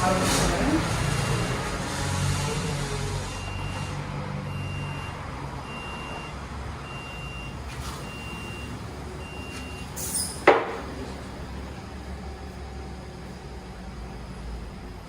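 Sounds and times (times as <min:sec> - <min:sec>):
high electronic warning beeps: 0:03.3 - 0:10.3.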